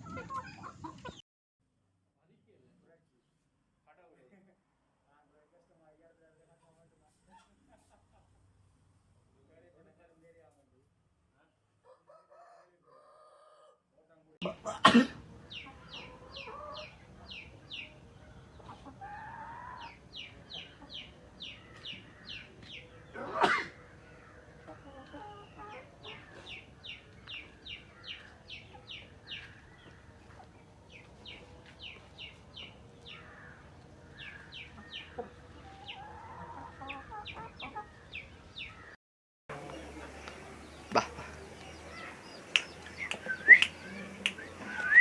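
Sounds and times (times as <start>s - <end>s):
chickens clucking: 0.0s - 1.2s, 39.5s - 45.0s
high peeping chirps: 39.5s - 45.0s
loud chicken call: 39.5s - 45.0s.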